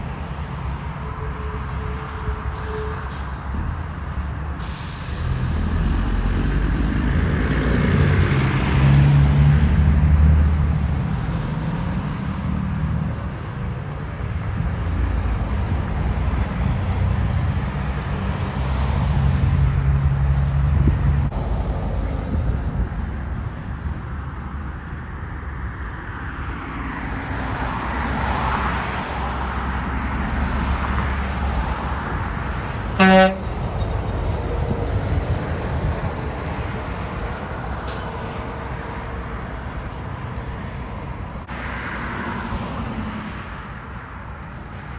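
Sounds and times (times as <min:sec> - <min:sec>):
heavy road traffic: 0:00.0 - 0:44.9
truck engines rumbling: 0:00.0 - 0:44.9
loud horn blast: 0:01.0 - 0:03.4, 0:33.0 - 0:33.6.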